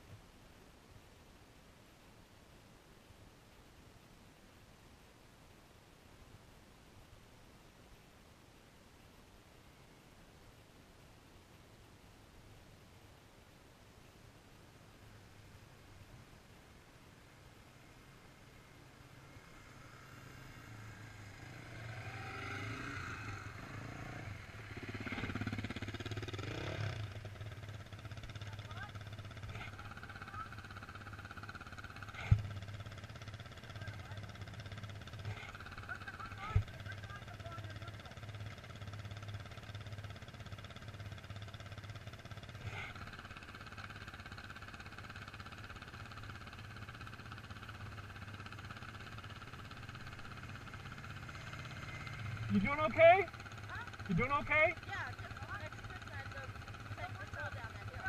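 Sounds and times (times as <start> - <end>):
motorcycle engine revving: 19.0 - 58.0.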